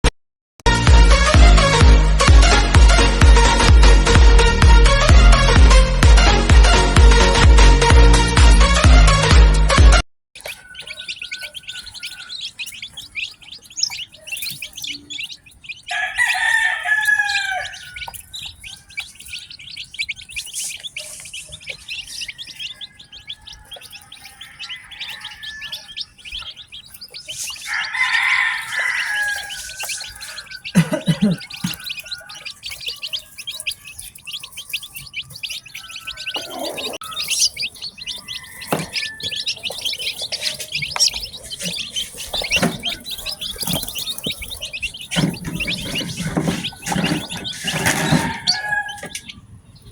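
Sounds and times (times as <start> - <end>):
chicks peeping: 0.7 - 49.9
adult chicken calling: 10.4 - 49.9.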